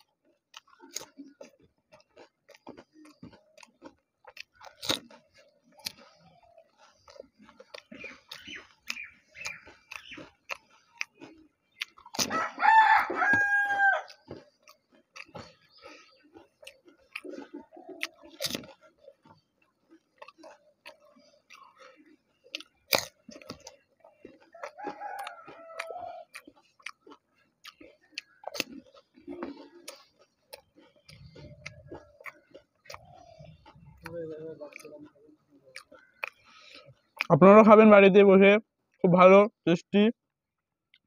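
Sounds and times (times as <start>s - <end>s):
crunching crisp shells: 0.0s - 35.1s, 35.7s - 37.3s
wet mouth clicks: 0.0s - 37.4s
rooster crowing: 12.2s - 14.2s, 24.6s - 26.3s.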